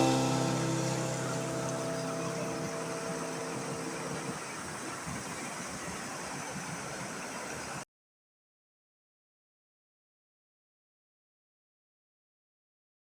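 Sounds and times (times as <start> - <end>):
piano music: 0.0 - 4.6
waterfall rushing: 0.0 - 7.7.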